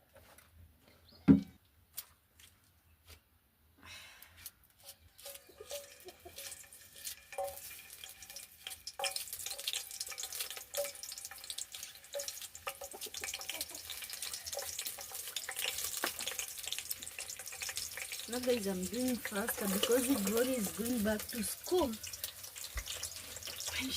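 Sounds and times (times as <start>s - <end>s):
fat sizzling in a pan: 5.2s - 23.9s.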